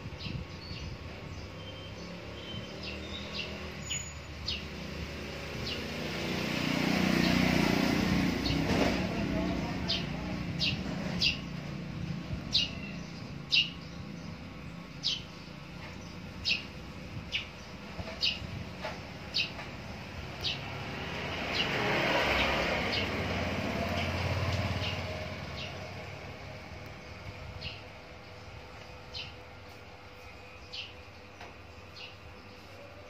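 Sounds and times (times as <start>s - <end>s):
small bird chirping: 0.1s - 4.8s, 12.4s - 20.7s, 26.8s - 32.9s
vehicle passing: 4.4s - 17.0s, 17.9s - 28.2s.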